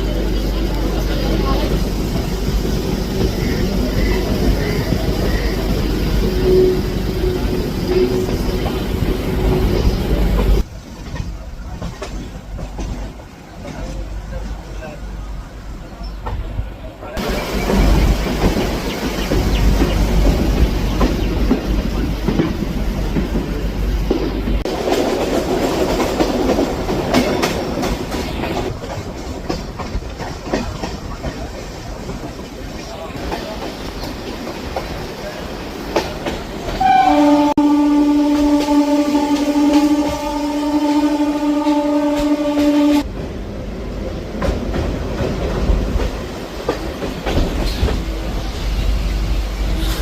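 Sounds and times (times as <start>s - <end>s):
train rattling rumble: 0.0s - 50.0s
wheels clacking over rail joints: 17.2s - 37.0s, 44.3s - 48.5s.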